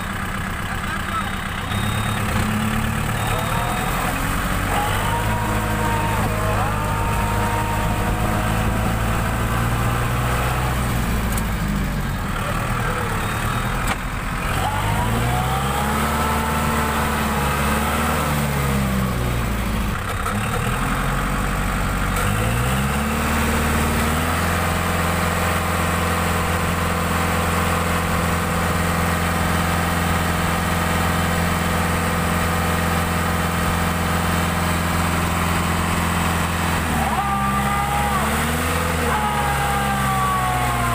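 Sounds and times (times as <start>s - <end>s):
tractor diesel engine revving: 0.0s - 40.9s.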